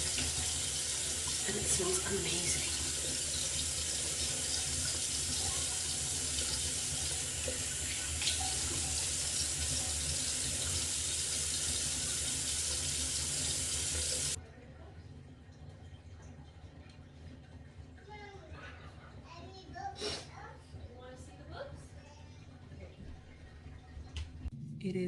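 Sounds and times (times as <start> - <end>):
tap water running into sink: 0.0 - 14.4.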